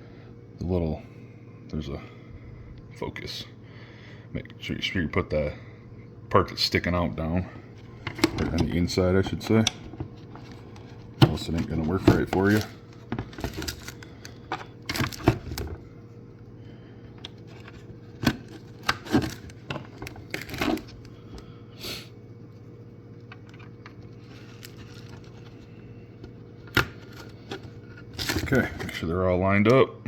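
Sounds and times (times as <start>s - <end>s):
steady low hum: 0.0s - 30.0s
plastic parts clicking and rattling: 8.0s - 15.8s, 17.5s - 21.1s, 23.4s - 25.6s, 26.7s - 29.0s.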